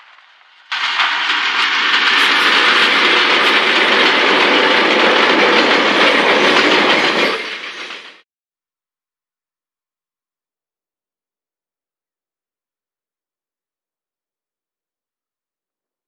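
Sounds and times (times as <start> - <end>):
train wheels rolling on rails: 0.0 - 8.2
diesel locomotive passing: 0.1 - 8.2.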